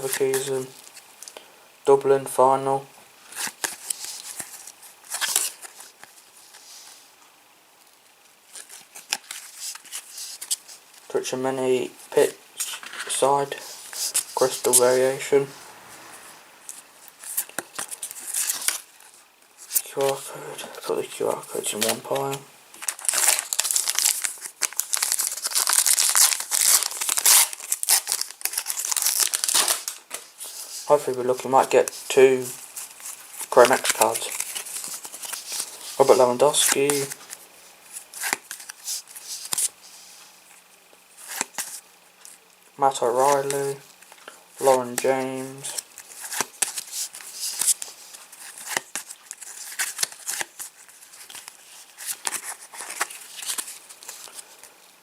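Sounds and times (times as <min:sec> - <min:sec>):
foil wrapper crinkling and tearing: 0:21.7 - 0:32.0, 0:32.6 - 0:39.7, 0:43.2 - 0:54.7.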